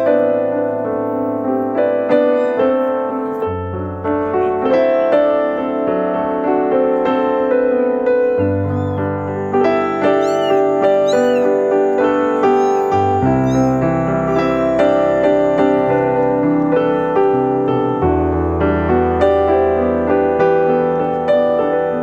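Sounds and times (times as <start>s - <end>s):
piano music: 0.0s - 22.0s
kitten mewing: 8.2s - 17.1s.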